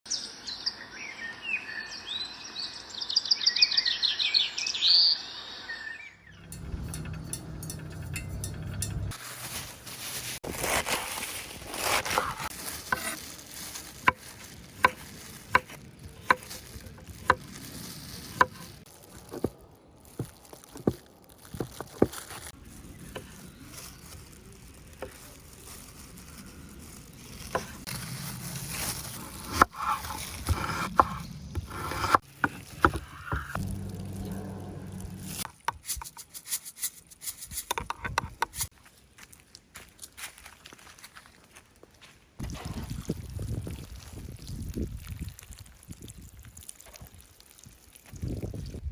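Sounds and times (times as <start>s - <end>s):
scraping and rustling: 6.4s - 38.7s.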